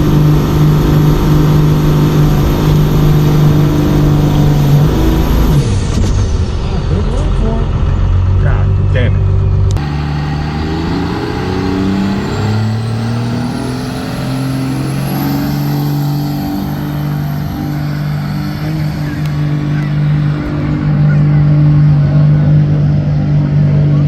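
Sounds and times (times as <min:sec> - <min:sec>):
diesel truck engine under load: 0:00.0 - 0:24.0
turbocharger whistle: 0:09.8 - 0:22.2.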